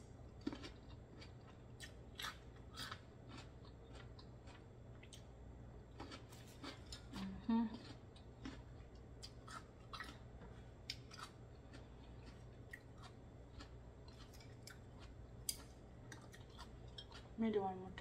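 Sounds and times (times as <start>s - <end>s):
low steady hum: 0.0s - 18.0s
wet mouth clicks chewing: 10.9s - 17.3s.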